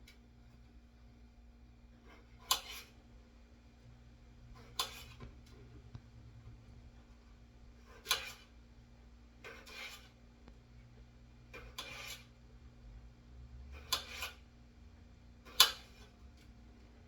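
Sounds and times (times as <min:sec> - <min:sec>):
scraping strokes in food preparation: 0:01.8 - 0:12.7, 0:13.6 - 0:14.7, 0:15.4 - 0:17.0.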